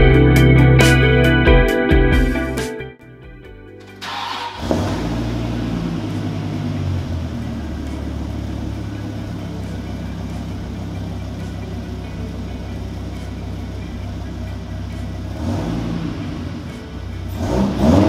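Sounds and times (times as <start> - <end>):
car engine idling: 4.0 - 18.0.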